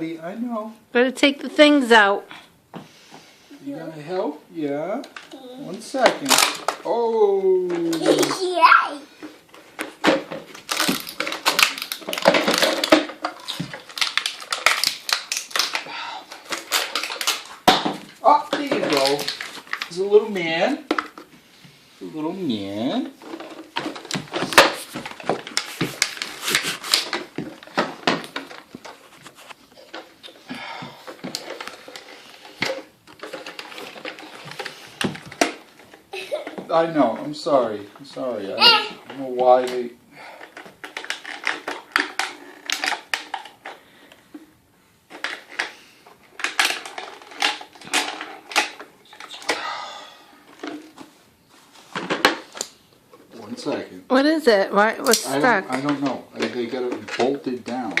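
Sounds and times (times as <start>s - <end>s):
plastic toy parts clicking and rattling: 5.0s - 6.9s, 7.7s - 8.5s, 9.8s - 17.8s, 18.4s - 20.0s, 31.1s - 36.6s, 40.4s - 43.8s, 45.1s - 49.6s, 55.0s - 58.0s.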